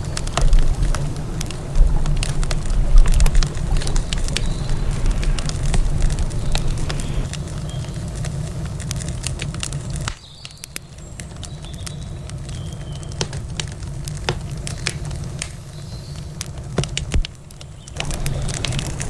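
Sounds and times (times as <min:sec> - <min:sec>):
faint high chirps: 0:00.0 - 0:07.3
low rumble: 0:00.0 - 0:07.3
campfire crackling and popping: 0:00.0 - 0:19.0.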